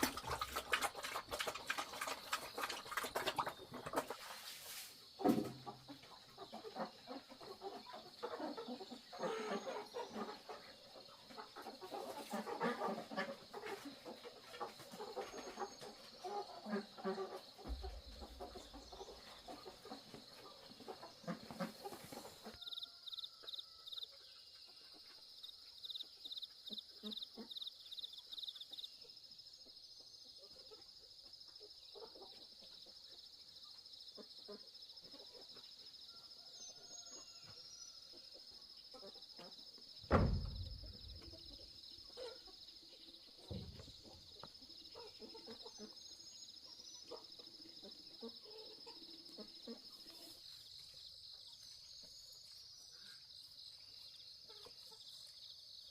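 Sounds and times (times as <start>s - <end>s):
insects droning: 0.0s - 55.9s
loud thud: 40.1s - 41.3s.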